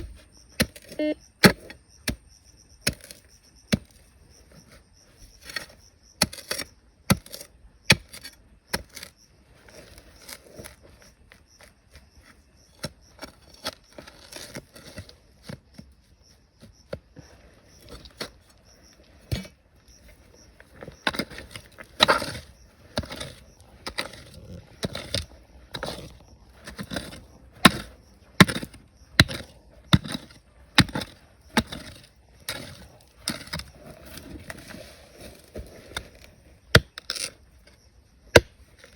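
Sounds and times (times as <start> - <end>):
digging tool striking rock: 0.0 - 4.1, 5.4 - 9.2, 19.2 - 19.6, 20.9 - 34.7, 35.3 - 38.9.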